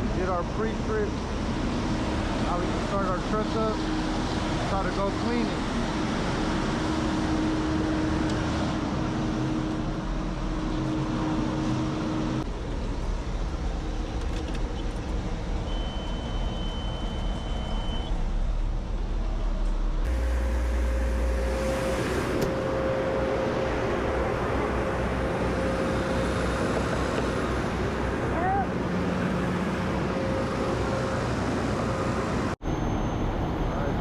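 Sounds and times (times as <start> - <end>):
air system building pressure: 15.3 - 34.0
high beep: 15.7 - 18.1
diesel engine idling: 20.0 - 34.0.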